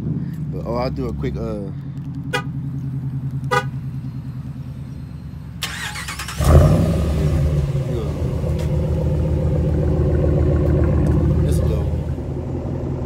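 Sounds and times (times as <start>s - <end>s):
pickup engine starting and idling: 0.2s - 13.0s
engine cranking hiss: 5.6s - 6.6s.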